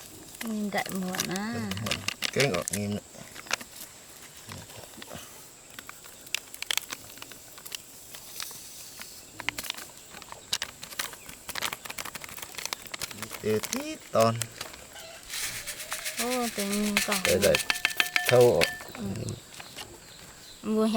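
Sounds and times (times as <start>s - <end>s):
small clicks and rustles: 0.0s - 20.5s.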